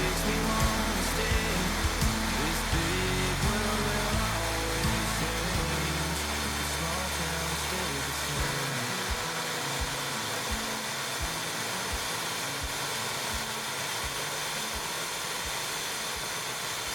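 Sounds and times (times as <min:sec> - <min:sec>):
soft low thumps: 0:00.0 - 0:07.8
steam hissing: 0:00.0 - 0:16.9.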